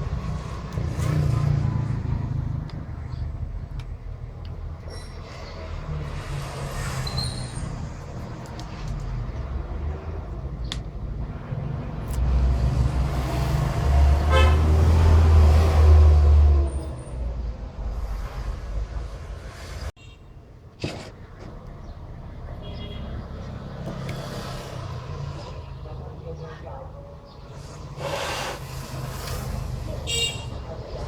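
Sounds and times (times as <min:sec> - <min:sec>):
vehicle passing rumble: 0:00.0 - 0:20.0, 0:21.2 - 0:31.0.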